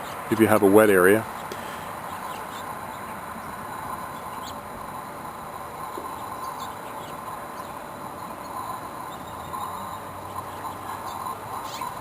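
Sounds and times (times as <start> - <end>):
constant faint hum: 0.0 - 12.0
faint bird chirps: 1.3 - 4.7, 5.8 - 12.0.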